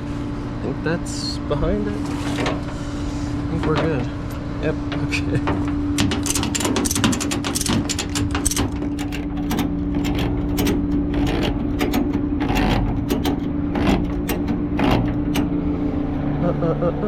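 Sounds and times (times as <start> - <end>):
tow truck equipment humming: 0.0 - 17.0
metallic clicks and clanks: 3.6 - 15.6.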